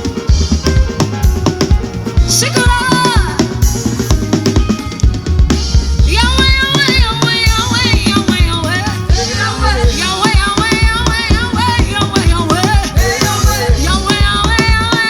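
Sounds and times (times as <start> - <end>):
band with drum kit and bass: 0.0 - 15.0
person singing: 6.1 - 15.0.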